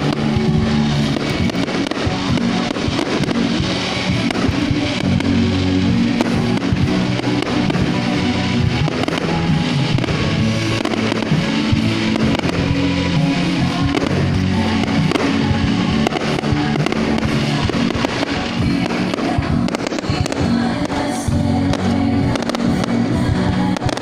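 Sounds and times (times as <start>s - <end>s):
fireworks bursting and crackling: 0.0s - 24.0s
music: 0.0s - 24.0s.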